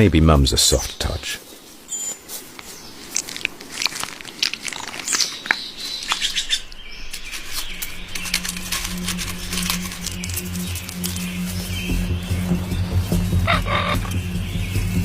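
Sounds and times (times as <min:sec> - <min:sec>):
birds chirping: 0:00.0 - 0:15.0
low steady musical drone: 0:06.6 - 0:15.0.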